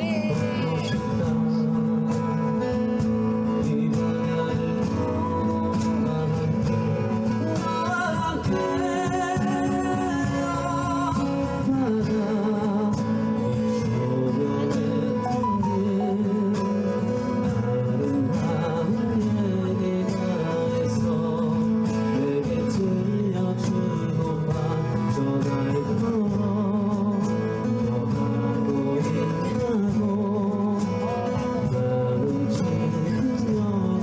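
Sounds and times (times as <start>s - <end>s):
band playing pop ballad: 0.0s - 34.0s
wavering melody line: 15.2s - 16.5s.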